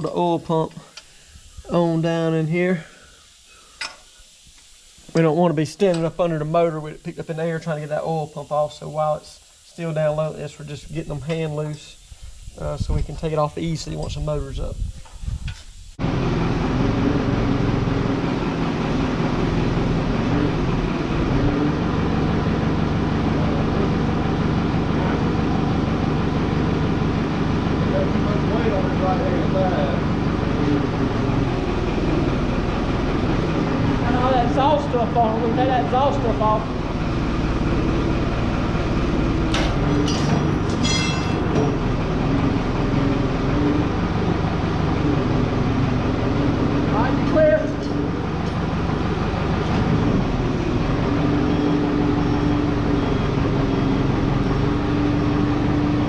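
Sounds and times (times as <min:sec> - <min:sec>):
machine rumbling: 0:10.4 - 0:56.0
engine running steadily: 0:15.5 - 0:56.0
metal clinks and clanks: 0:40.0 - 0:41.6.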